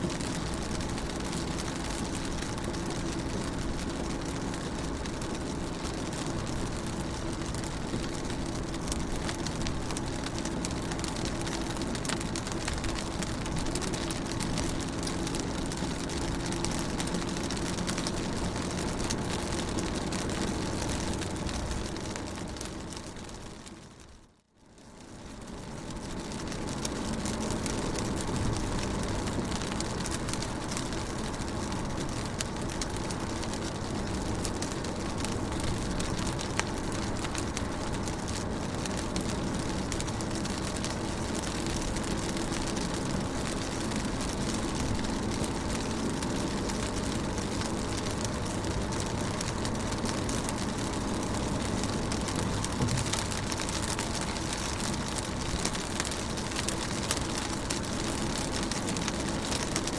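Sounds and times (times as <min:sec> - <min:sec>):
rain pattering on car: 0:00.0 - 0:59.9
low rumble: 0:49.9 - 0:55.2.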